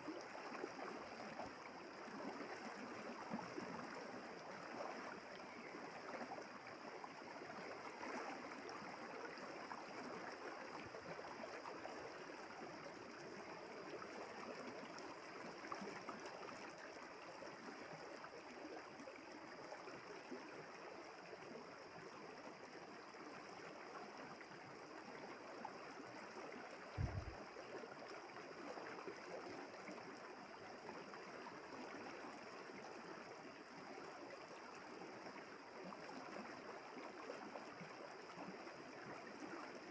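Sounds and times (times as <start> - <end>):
river water flowing: 0.0 - 39.9
brief low thump: 27.0 - 27.4.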